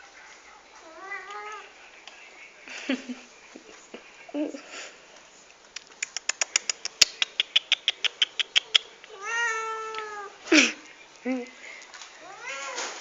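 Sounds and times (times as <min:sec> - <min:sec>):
fast sharp clicks: 0:05.8 - 0:09.1
cat meowing: 0:09.1 - 0:10.4, 0:12.2 - 0:12.9.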